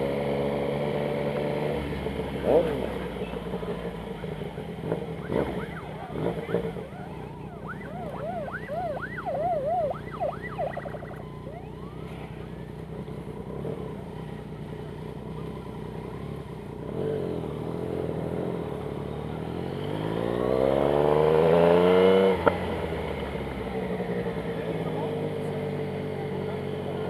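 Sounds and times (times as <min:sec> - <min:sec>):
motorcycle engine revving: 0:00.0 - 0:27.0
motorcycle engine idling: 0:02.0 - 0:19.6, 0:22.6 - 0:27.0
siren wailing: 0:05.2 - 0:12.2.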